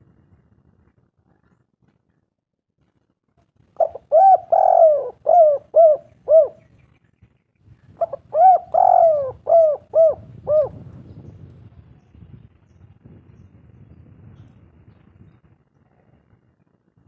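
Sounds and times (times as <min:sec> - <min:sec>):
dove cooing: 0:03.8 - 0:06.7, 0:08.0 - 0:11.0.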